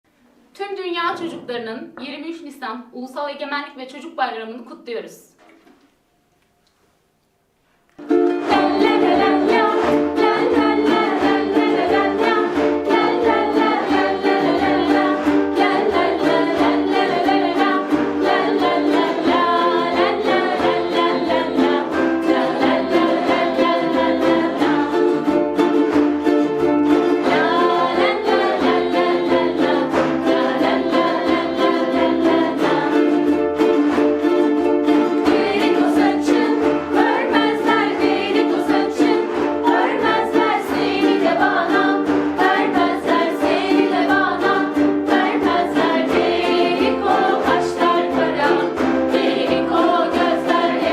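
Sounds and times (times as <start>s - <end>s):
ukuleles strumming chords: 6.7s - 50.9s
voices singing children's song: 8.3s - 25.6s, 26.8s - 33.6s, 35.1s - 50.9s.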